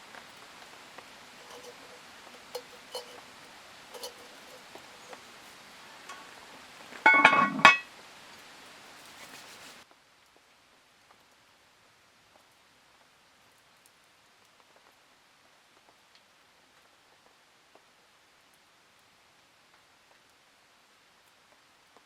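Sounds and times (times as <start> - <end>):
steady rain: 0.0 - 22.0
scattered drips: 0.2 - 6.4
tableware clinking: 1.4 - 5.3, 7.0 - 7.9.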